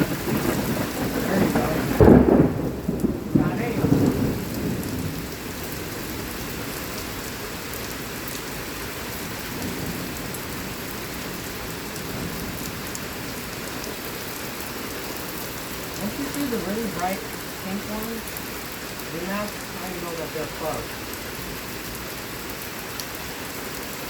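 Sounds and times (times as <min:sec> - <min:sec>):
thunder rumble: 0:00.0 - 0:07.3, 0:15.7 - 0:21.5
heavy rain pouring: 0:00.0 - 0:24.0.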